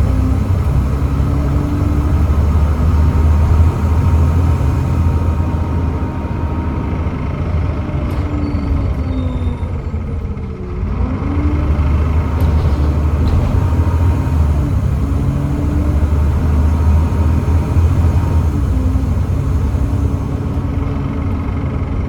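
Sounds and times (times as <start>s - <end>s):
bus diesel engine running: 0.0s - 22.0s.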